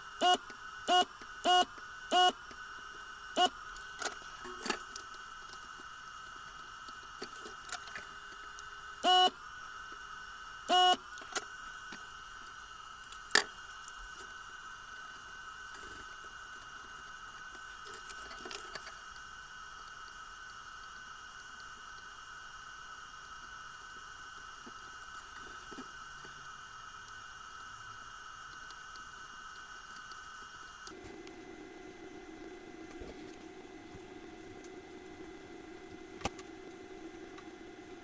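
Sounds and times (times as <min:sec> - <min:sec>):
steady high whine: 0:00.0 - 0:38.0
short electronic beeps: 0:09.0 - 0:09.3, 0:10.7 - 0:11.0.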